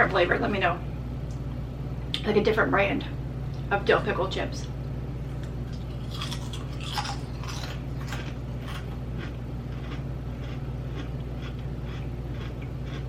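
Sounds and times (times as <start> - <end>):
potato chips crunching being chewed: 5.3 - 13.0.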